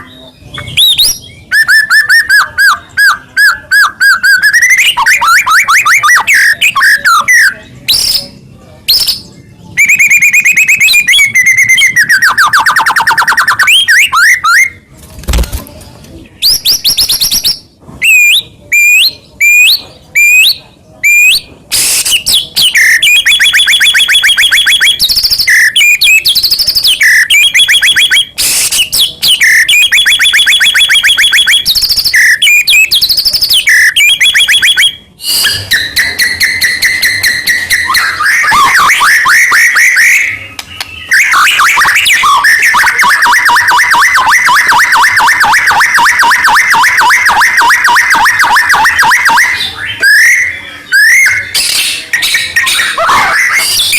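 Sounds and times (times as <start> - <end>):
bird singing whistles and trills: 0.0 - 14.8, 16.4 - 43.8, 47.8 - 53.9.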